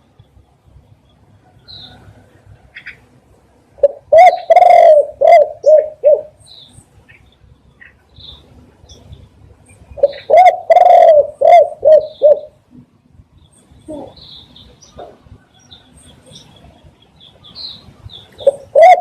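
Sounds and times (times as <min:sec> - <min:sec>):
small birds chirping: 0:00.0 - 0:03.1, 0:03.8 - 0:19.0
dove cooing: 0:03.8 - 0:06.4, 0:10.0 - 0:12.6, 0:18.4 - 0:19.0.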